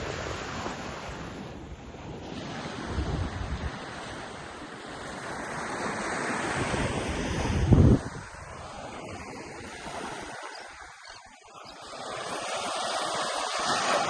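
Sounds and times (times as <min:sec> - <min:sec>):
wind buffeting microphone: 0:00.0 - 0:04.3, 0:06.5 - 0:11.2
ocean surf washing onto beach: 0:00.0 - 0:14.0.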